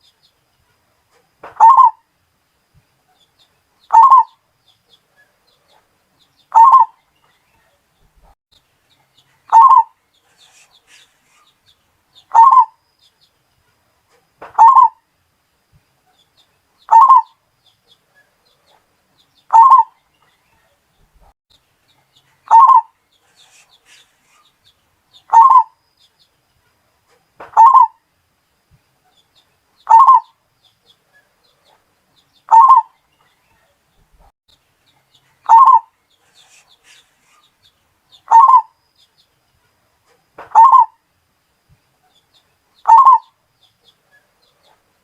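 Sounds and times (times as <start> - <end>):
dove cooing: 1.6 - 2.0, 3.9 - 4.3, 6.5 - 7.0, 9.5 - 11.1, 12.3 - 12.8, 14.6 - 15.0, 16.9 - 17.3, 19.5 - 19.9, 22.5 - 24.0, 25.3 - 25.7, 27.5 - 28.0, 29.9 - 30.3, 32.5 - 32.9, 35.4 - 35.9, 38.3 - 38.7, 40.5 - 40.9, 42.9 - 43.3.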